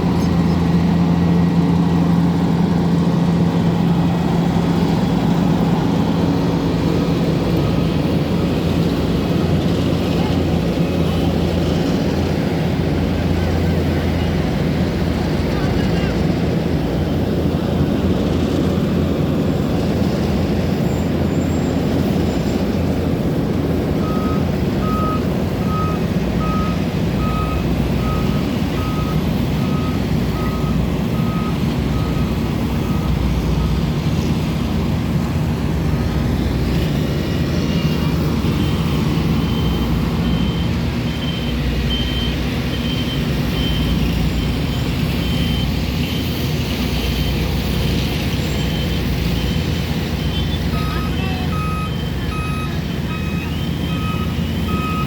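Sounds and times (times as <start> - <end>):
heavy machinery running: 0.0 - 55.0
reversing alarm beeping: 24.0 - 33.9, 38.3 - 46.3, 48.6 - 55.0.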